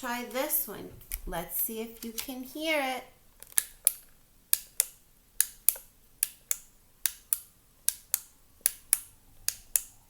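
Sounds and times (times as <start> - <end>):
flashlight switch clicks: 3.6 - 10.0.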